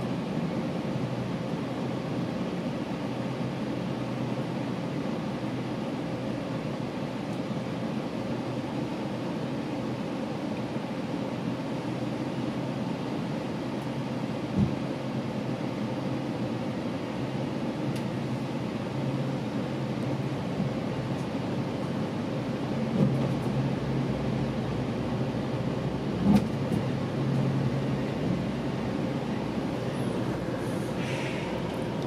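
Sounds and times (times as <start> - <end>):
train wheels rumbling on rails: 17.7 - 32.0.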